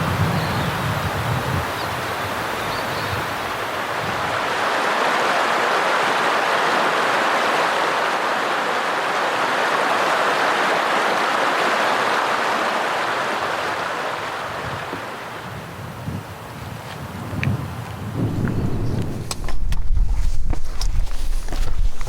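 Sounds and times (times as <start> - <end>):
stream water rushing: 1.6 - 15.5.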